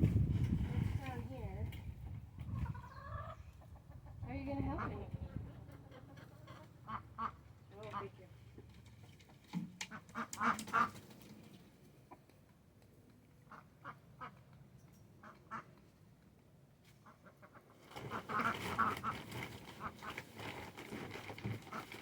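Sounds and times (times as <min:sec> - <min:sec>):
ducks quacking: 0:02.6 - 0:08.2.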